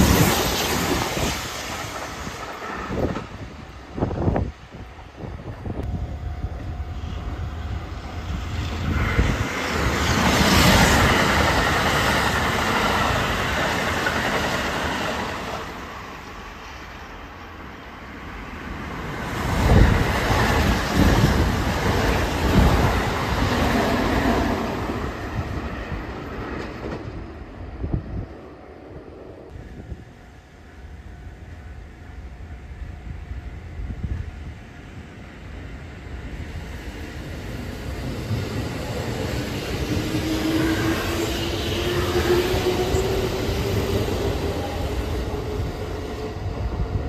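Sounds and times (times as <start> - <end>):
train wheels rumbling and clattering: 0.0 - 6.0, 7.1 - 17.1, 19.0 - 28.1.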